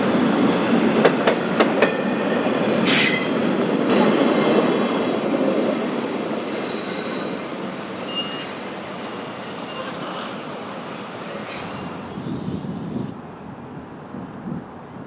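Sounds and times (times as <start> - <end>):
freight train rumbling clatter: 0.0 - 13.2
high wheel squeal: 6.4 - 10.3.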